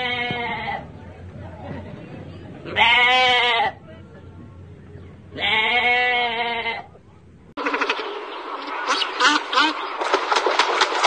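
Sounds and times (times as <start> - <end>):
noisy sound: 0.0 - 6.1
sheep bleating: 2.7 - 3.8, 5.4 - 6.9.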